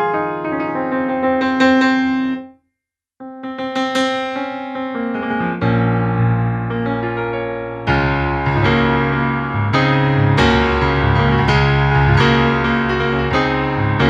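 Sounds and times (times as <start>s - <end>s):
grand piano notes: 4.7s - 14.0s
low bass piano notes: 5.3s - 14.0s.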